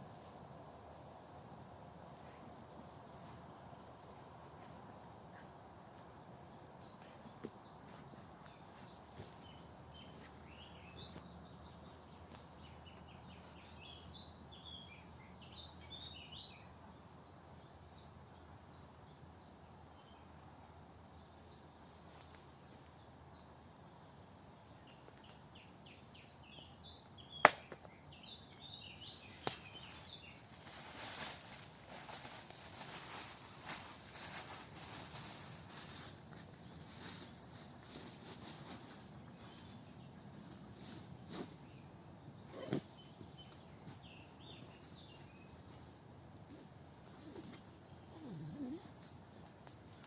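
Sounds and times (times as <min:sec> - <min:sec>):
rustling: 0:02.1 - 0:14.1, 0:28.6 - 0:41.8, 0:42.4 - 0:50.0
small birds chirping: 0:02.1 - 0:50.0.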